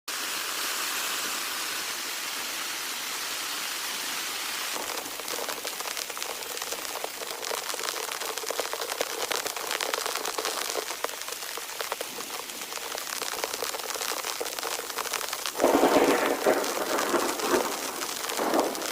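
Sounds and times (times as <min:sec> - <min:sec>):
rain hiss: 0:00.1 - 0:18.9
raindrops striking close by: 0:04.6 - 0:18.9.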